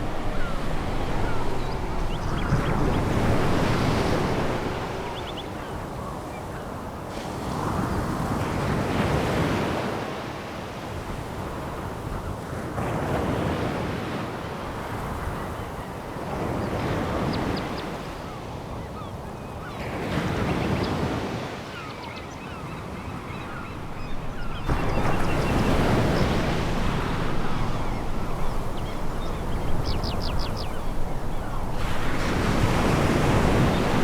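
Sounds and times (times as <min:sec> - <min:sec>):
waves breaking on pebble beach: 0:23.5 - 0:34.0.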